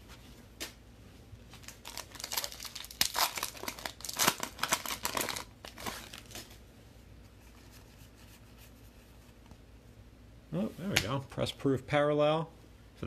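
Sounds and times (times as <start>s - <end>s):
wrapper crinkling and tearing: 1.5s - 6.6s.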